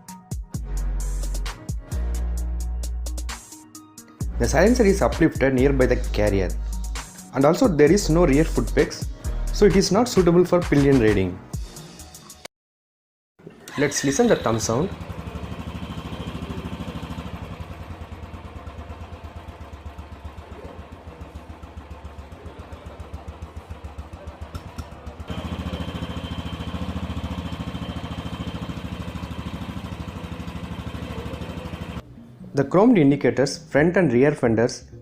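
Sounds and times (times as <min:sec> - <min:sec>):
motorcycle engine idling: 0:14.0 - 0:32.0.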